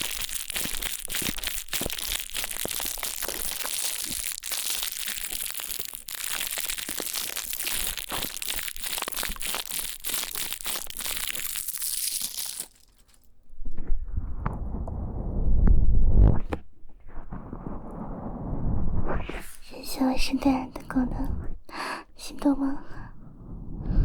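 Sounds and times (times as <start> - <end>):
low rumbling rub on microphone: 13.5 - 21.7, 23.0 - 24.0
scratching on microphone: 13.6 - 21.7.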